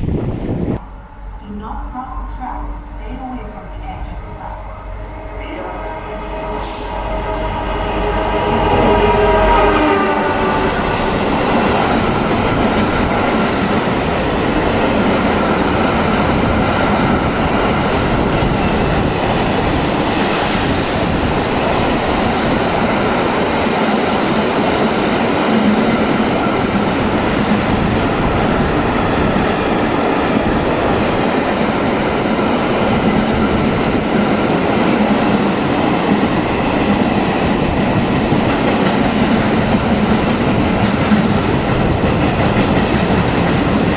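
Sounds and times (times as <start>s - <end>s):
locomotive pitched tone: 0.8s - 14.1s
train wheels rattling on rails: 6.2s - 43.9s.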